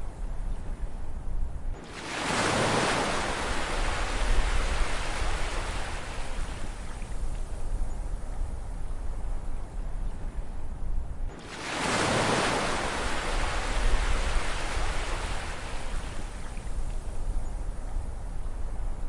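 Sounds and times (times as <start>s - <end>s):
low rumble of sea: 0.0s - 19.0s
ocean wave breaking: 1.8s - 6.4s, 11.4s - 16.0s.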